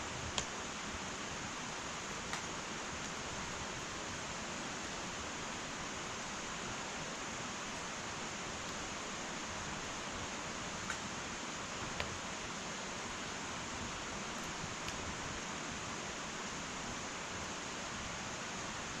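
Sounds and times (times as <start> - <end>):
faint fire crackles: 0.0 - 19.0
wood fire hissing: 0.0 - 19.0.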